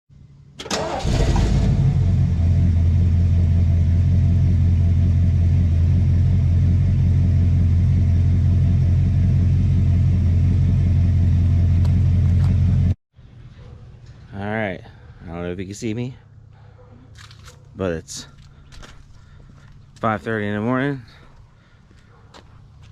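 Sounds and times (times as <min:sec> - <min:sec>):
vehicle engine running: 0:01.1 - 0:13.0.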